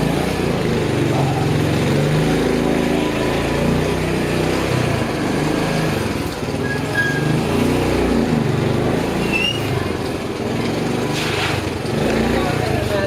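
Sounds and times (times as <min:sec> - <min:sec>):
motorcycle engine pulling uphill: 0:00.0 - 0:13.0
street noise: 0:00.0 - 0:13.0.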